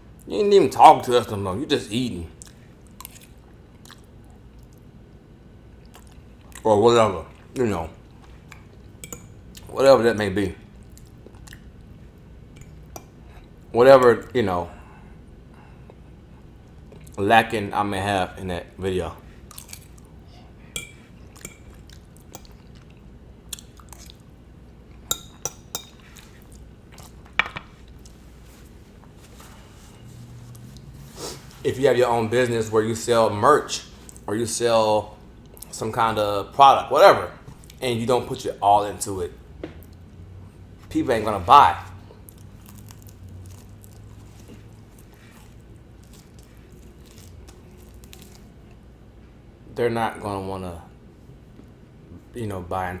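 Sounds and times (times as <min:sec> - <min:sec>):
low steady hum: 0:00.0 - 0:53.0
person chewing: 0:02.4 - 0:04.8, 0:05.8 - 0:06.6, 0:10.8 - 0:13.6, 0:19.4 - 0:20.2, 0:20.8 - 0:24.3, 0:24.9 - 0:31.7, 0:33.9 - 0:34.3, 0:42.0 - 0:48.9.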